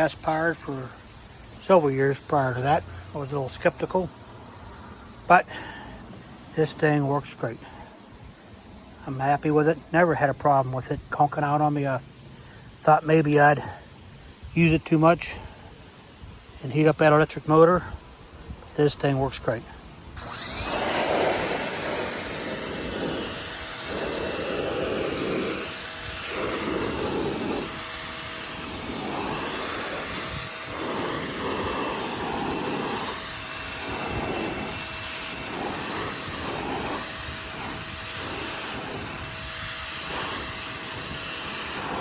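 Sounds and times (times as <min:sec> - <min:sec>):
pressure washer spray hiss: 0:00.0 - 0:09.7, 0:20.2 - 0:42.0
swishing spray noise: 0:20.2 - 0:42.0.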